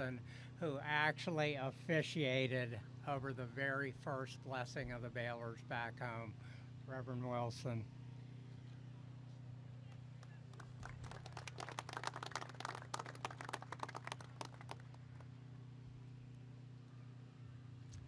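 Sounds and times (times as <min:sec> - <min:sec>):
low hum: 0:00.0 - 0:18.0
audience applause: 0:10.5 - 0:15.1.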